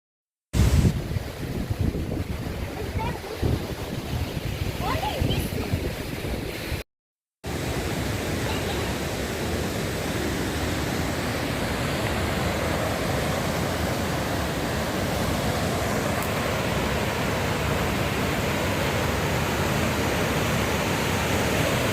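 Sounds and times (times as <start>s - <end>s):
waterfall roaring: 7.5s - 21.9s.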